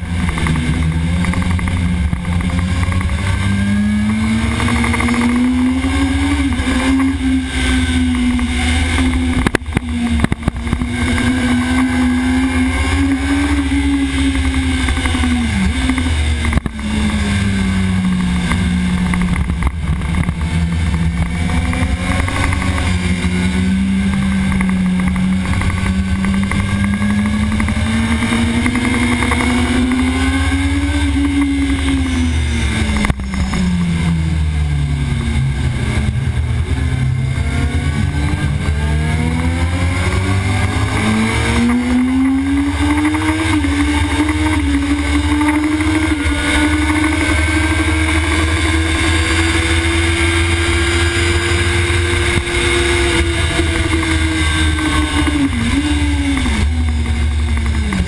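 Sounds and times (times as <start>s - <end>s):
heavy low rumble: 0.0s - 42.7s
sport bike engine at high revs: 0.0s - 58.0s.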